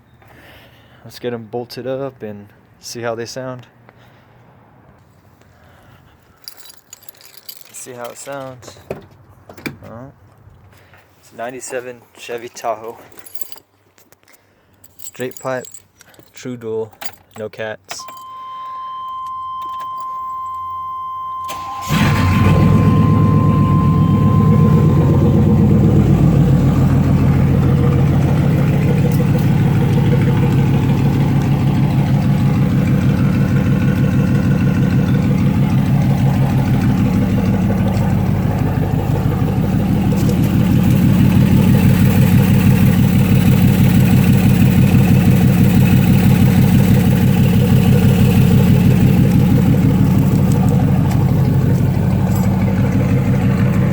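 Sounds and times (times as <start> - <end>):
steady high tone: 18.0 - 33.2
engine starting and pulsing idle: 18.1 - 53.9.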